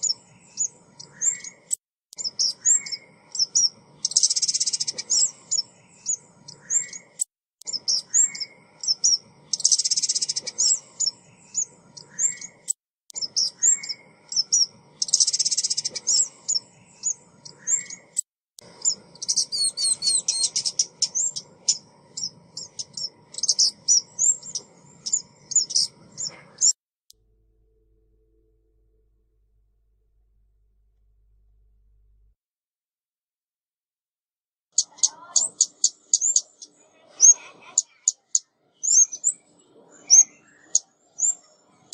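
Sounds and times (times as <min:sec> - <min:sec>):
bird chirps and whistled notes: 0:00.0 - 0:26.8, 0:34.8 - 0:36.7, 0:37.9 - 0:39.4, 0:40.0 - 0:41.5.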